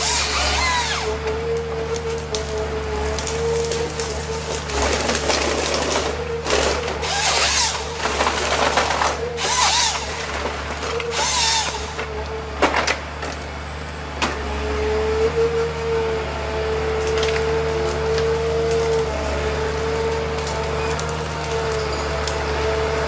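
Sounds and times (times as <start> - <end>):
saw cutting through wood: 0.0 - 12.4
wood-cutting machine running: 0.0 - 23.0.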